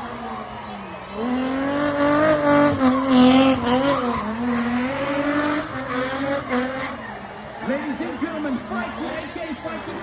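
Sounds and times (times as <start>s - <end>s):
car engine at high revs: 0.0s - 8.7s
tyres skidding and squealing: 0.0s - 10.0s.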